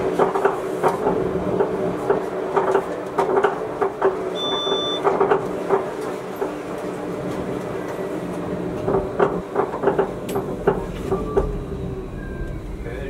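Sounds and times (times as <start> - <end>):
electric train humming: 0.0 - 13.0
short high beep: 4.4 - 5.0.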